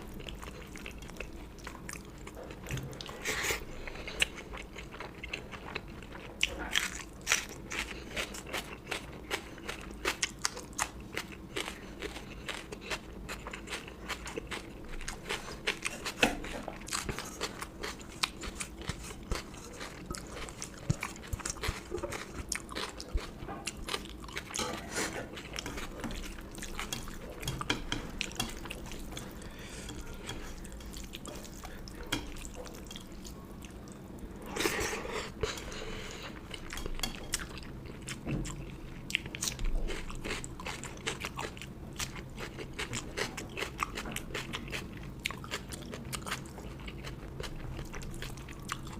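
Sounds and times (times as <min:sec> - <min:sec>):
chewing with wet mouth clicks: 0:36.4 - 0:48.9.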